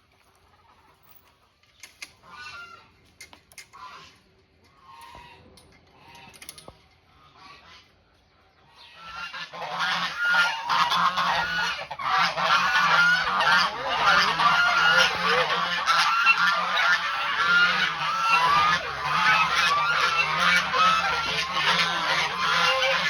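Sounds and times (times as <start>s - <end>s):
farm fowl calling: 2.2s - 3.0s, 3.7s - 5.4s, 8.7s - 23.0s.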